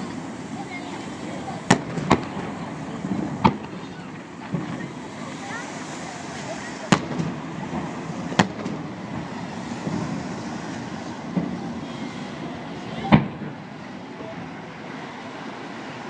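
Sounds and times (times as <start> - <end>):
fireworks booming: 0.0 - 14.8
crowd murmur: 0.0 - 16.0
loud firework bang: 1.6 - 5.1, 6.8 - 13.6.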